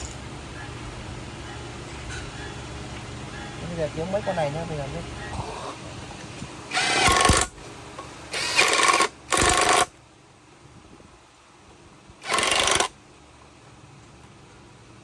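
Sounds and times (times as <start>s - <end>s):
pneumatic tool bursts: 6.7s - 7.6s, 8.3s - 9.9s, 12.2s - 12.9s.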